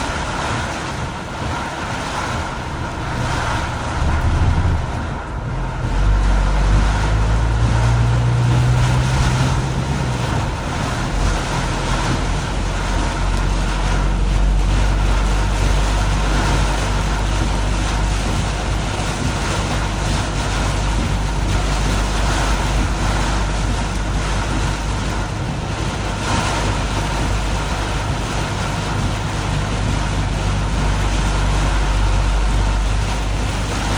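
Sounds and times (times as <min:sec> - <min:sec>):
low vehicle rumble: 0:00.0 - 0:33.9
rain and wet tyres hissing: 0:00.0 - 0:33.9.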